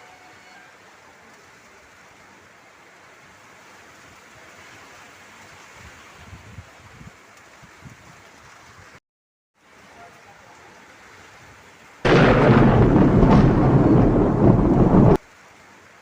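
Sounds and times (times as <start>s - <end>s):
wind gusts buffeting microphone: 12.1s - 15.2s.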